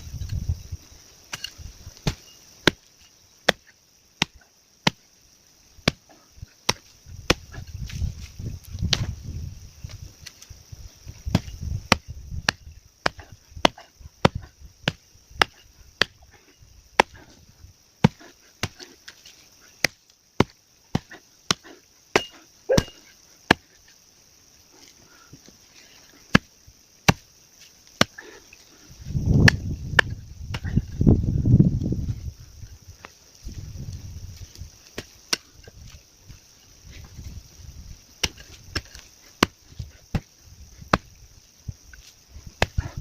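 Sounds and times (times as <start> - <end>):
hand tool chopping roots: 19.8 - 23.8, 27.1 - 27.3, 38.2 - 40.3, 42.6 - 43.0.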